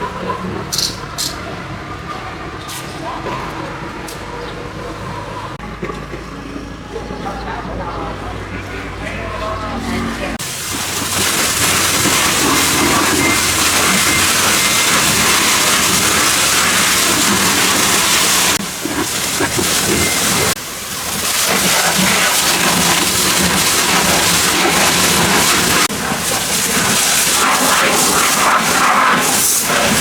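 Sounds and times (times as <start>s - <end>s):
high-pressure water jet hissing: 10.3s - 30.0s.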